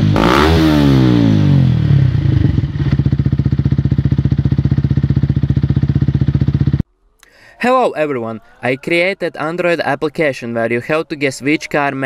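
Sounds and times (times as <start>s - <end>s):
motorcycle engine revving and idling: 0.0s - 6.8s.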